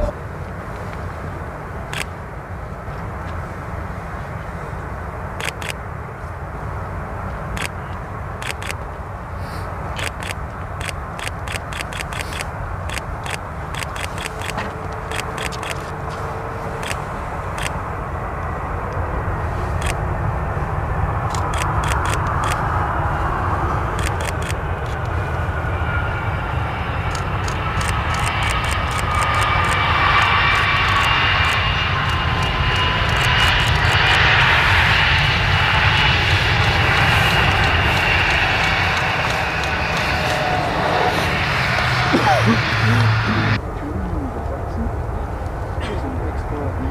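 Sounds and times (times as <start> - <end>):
jet aircraft rumble: 0.0 - 46.9
sharp clicks: 5.4 - 5.8, 8.4 - 8.8, 10.0 - 15.9, 21.3 - 22.6, 24.0 - 25.1, 27.1 - 34.0
faint whine: 12.4 - 46.9.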